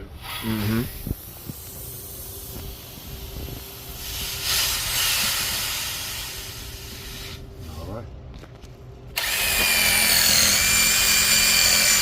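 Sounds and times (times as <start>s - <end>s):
pressurized gas hissing from pipe: 0.2s - 7.8s.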